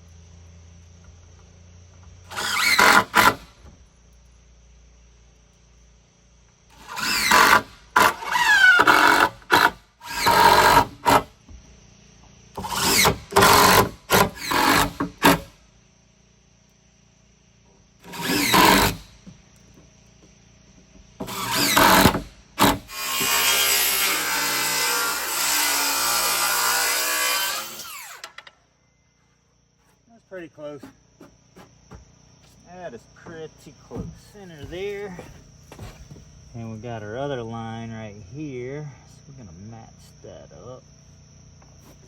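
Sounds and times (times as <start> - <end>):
hand-held power tool motor: 2.3 - 3.6, 6.8 - 11.3, 12.6 - 15.5, 18.0 - 19.1, 21.2 - 28.4.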